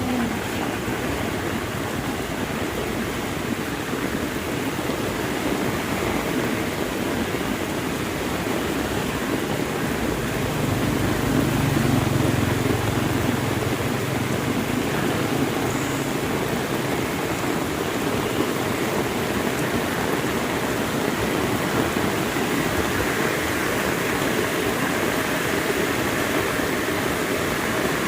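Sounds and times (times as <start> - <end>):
heavy rain: 0.0 - 28.0.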